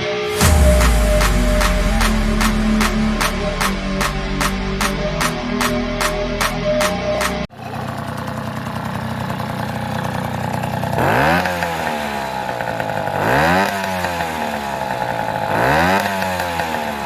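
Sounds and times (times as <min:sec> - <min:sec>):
moped engine idling and revving: 0:07.2 - 0:17.0.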